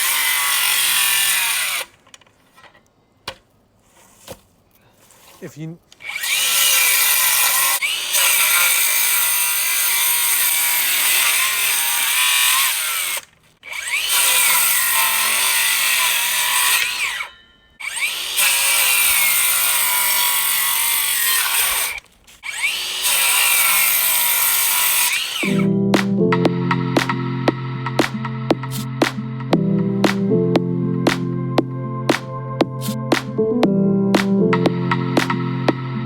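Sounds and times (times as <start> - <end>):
power saw cutting wood: 0.0 - 2.0, 6.0 - 25.7.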